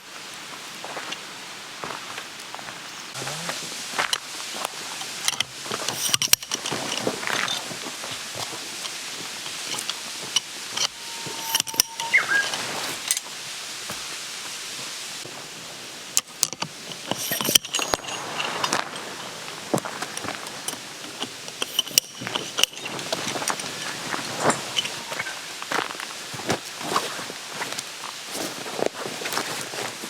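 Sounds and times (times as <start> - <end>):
small hard objects clinking: 4.1 - 13.3, 16.8 - 26.0
rising and falling chirp: 11.0 - 12.6
short whistle-like tone: 11.0 - 12.6.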